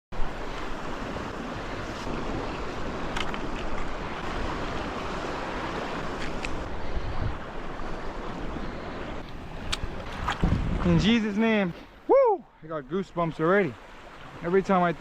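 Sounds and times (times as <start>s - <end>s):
ocean surf washing: 0.1s - 15.0s
wind buffeting microphone: 0.2s - 11.4s.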